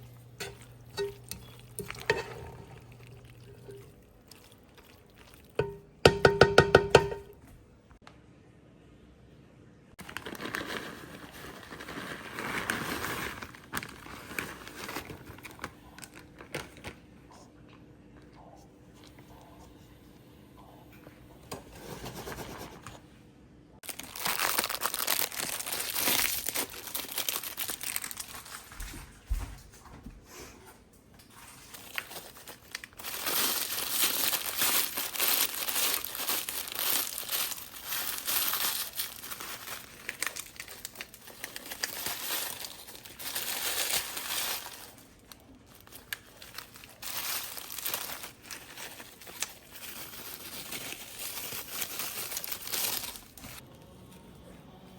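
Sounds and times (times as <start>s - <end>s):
packaging crinkling: 10.0s - 17.1s, 23.8s - 28.8s, 31.3s - 53.6s.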